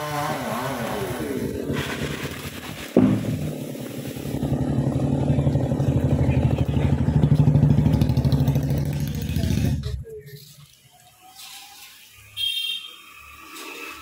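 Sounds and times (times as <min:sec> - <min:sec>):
sharp knock: 0:03.0 - 0:03.6
small engine running: 0:03.1 - 0:09.8.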